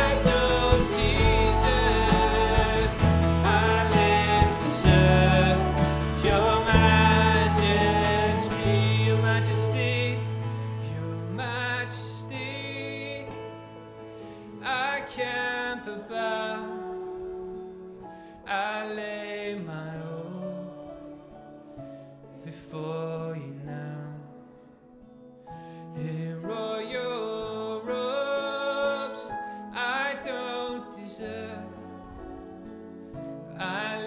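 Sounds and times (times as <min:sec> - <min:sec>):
deep bass: 0:00.0 - 0:11.6
sustained band chords: 0:00.0 - 0:11.8.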